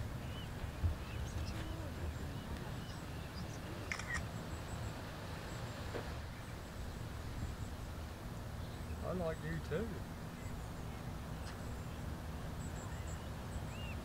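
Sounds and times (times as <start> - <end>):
wind rumble on microphone: 0.0 - 9.4
faint bird chirps: 0.2 - 7.9, 10.3 - 14.0.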